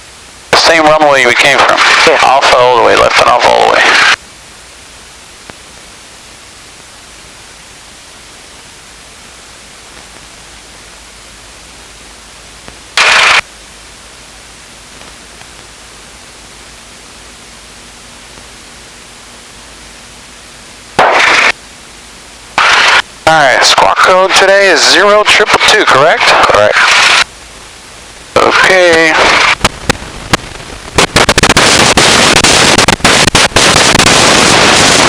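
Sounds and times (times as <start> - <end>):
loud static burst: 0.0 - 35.0
radio intercom hiss: 0.5 - 4.2, 9.6 - 17.8, 20.9 - 21.6, 22.5 - 35.0.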